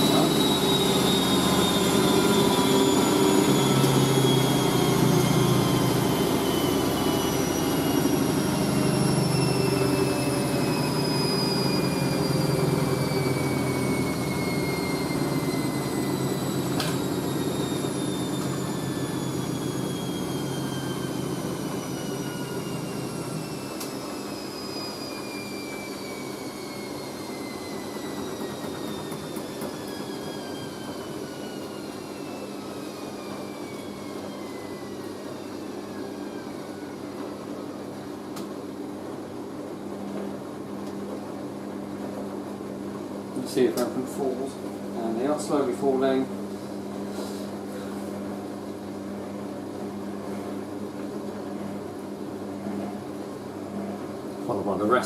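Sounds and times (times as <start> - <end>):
washing machine spinning down: 0.0 - 55.0.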